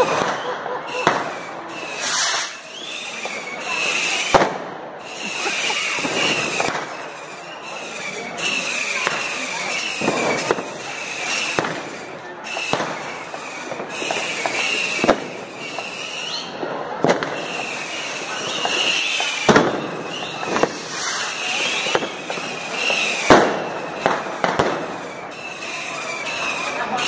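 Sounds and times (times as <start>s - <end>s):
firework bangs: 0.0s - 27.0s
firework crackle: 0.0s - 27.0s
high whistling: 1.8s - 4.2s.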